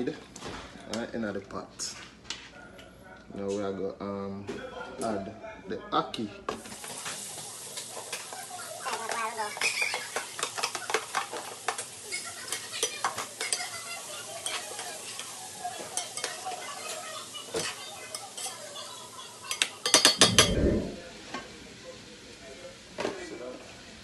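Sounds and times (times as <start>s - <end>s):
food sizzling: 6.6s - 21.0s.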